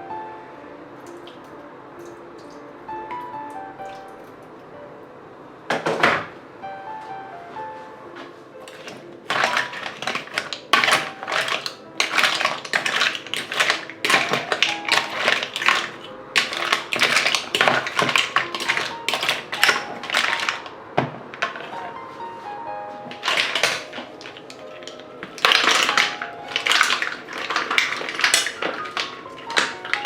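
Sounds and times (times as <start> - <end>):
soft background music: 0.0 - 30.0
kitchen clicks and taps: 8.7 - 21.9, 23.1 - 30.0.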